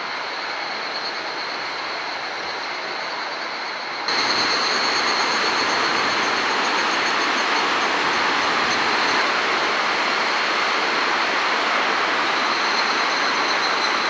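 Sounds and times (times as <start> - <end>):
gusty wind rushing: 4.1 - 14.0
high-pitched whine: 4.1 - 14.0.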